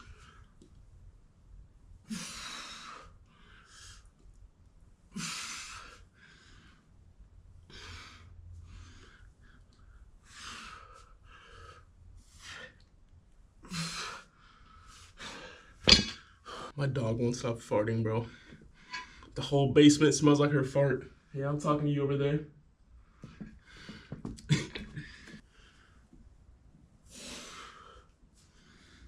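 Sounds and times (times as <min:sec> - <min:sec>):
person breathing hard: 0:02.1 - 0:04.1, 0:05.1 - 0:07.0, 0:07.7 - 0:12.9, 0:13.6 - 0:16.8, 0:27.0 - 0:29.0.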